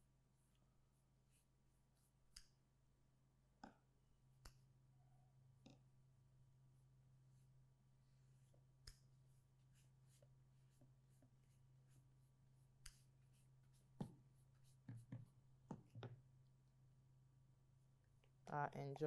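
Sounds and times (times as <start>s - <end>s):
faint taps and scratches: 8.4s - 16.5s.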